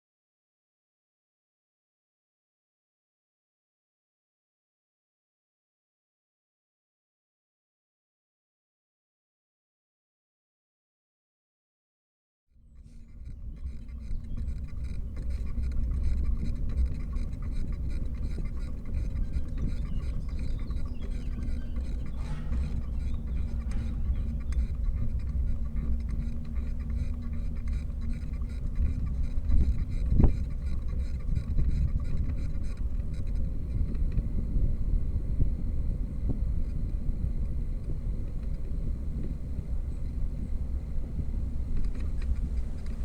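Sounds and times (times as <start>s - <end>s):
faint steady hum: 12.6s - 43.0s
low rumble of travel: 12.7s - 43.0s
wind buffeting microphone: 12.8s - 43.0s
rising squeak: 19.8s - 24.7s.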